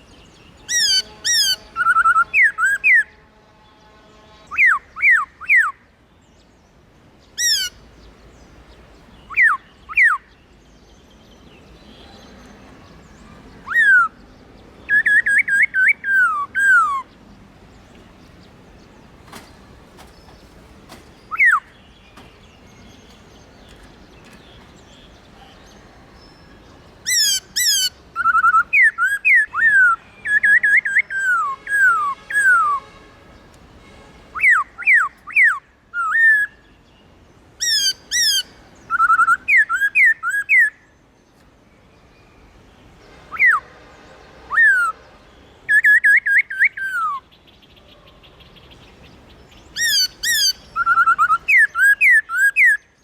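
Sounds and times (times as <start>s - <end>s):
bird singing clear whistles: 14.9s - 17.2s, 21.2s - 23.2s, 27.1s - 32.9s, 37.6s - 40.8s, 49.6s - 53.0s.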